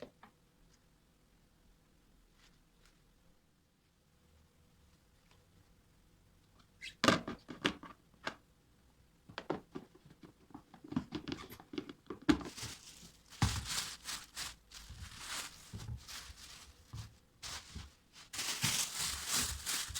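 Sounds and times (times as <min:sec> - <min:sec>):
plastic packaging crinkling: 0:12.3 - 0:19.9.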